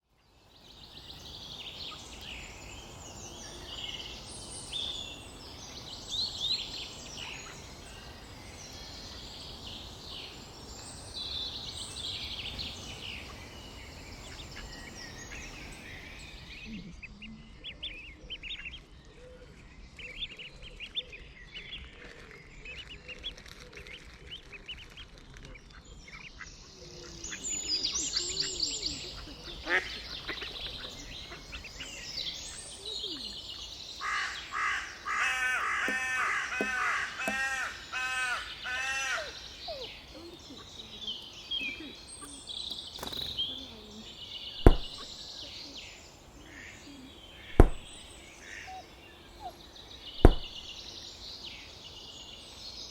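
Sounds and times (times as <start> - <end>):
woodland birds singing: 0.0 - 52.9
sharp knock: 44.6 - 45.1, 47.6 - 48.0, 50.2 - 50.6.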